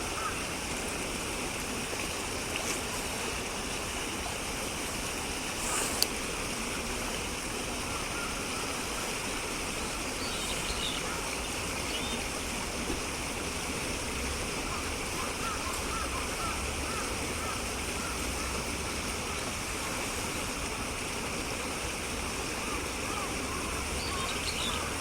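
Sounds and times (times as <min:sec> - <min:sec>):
flowing water: 0:00.0 - 0:25.0.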